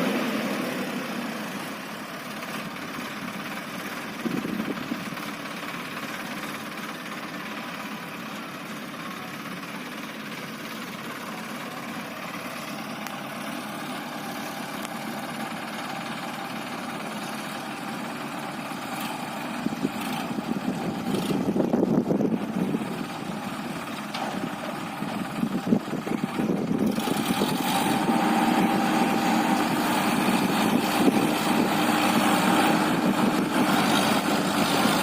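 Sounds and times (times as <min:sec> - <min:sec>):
heavy machinery diesel engine: 0:00.0 - 0:35.0.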